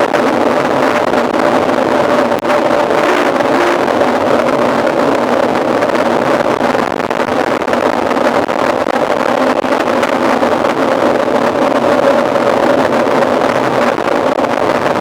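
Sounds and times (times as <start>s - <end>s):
bike tyre and drivetrain rattle: 0.0s - 15.0s
wind rushing over microphone: 0.0s - 15.0s.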